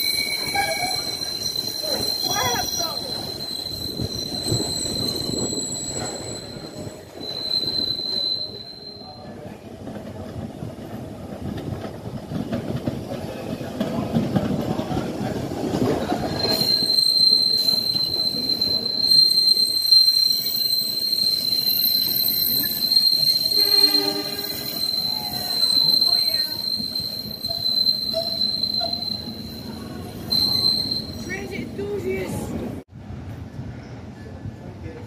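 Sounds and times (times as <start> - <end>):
high wheel squeal: 0.0 - 9.4, 15.7 - 32.5
train rumbling on rails: 0.0 - 35.0.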